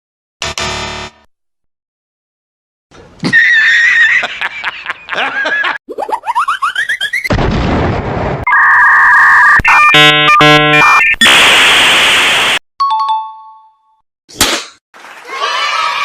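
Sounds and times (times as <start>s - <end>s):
rumbling blast: 7.3s - 8.4s
electronic buzzing and beeping: 8.5s - 12.6s.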